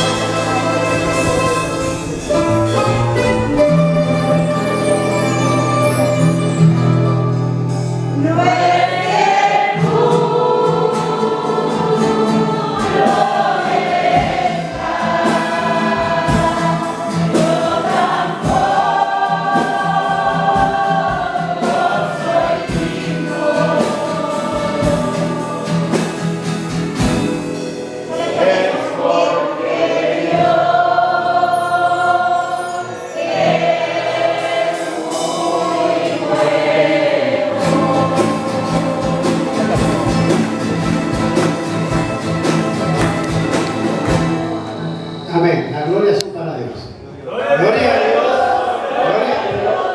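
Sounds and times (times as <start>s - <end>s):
choir singing a hymn: 0.0s - 46.0s, 47.2s - 49.9s.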